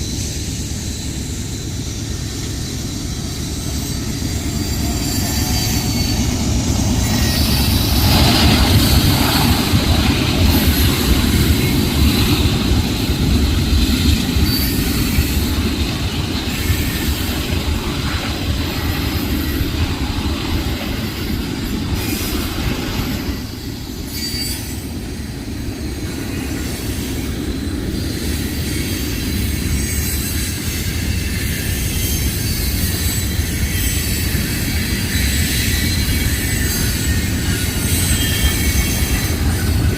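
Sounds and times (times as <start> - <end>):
freight train wheels rumbling: 0.0 - 39.9
thin high tone: 3.2 - 8.2.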